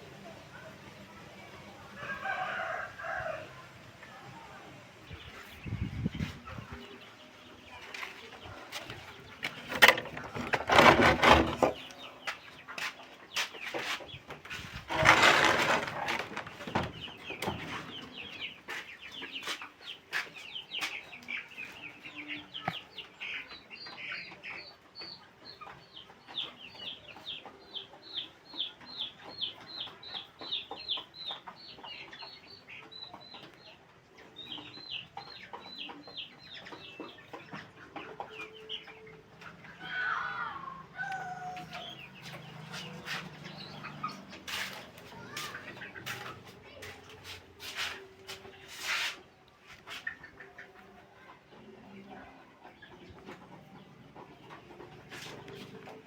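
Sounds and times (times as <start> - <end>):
chick peeping: 0.0 - 56.0
chickens clucking: 0.0 - 56.0
loud rustling: 8.8 - 11.9, 14.5 - 17.0.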